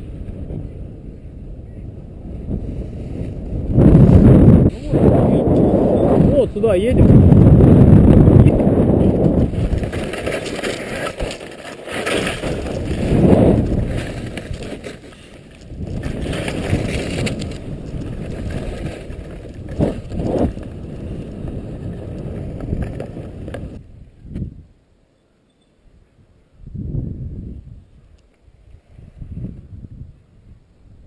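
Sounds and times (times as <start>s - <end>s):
wind buffeting microphone: 0.0s - 11.4s, 12.1s - 24.8s, 25.9s - 31.0s
skis scraping over snow: 7.6s - 23.8s.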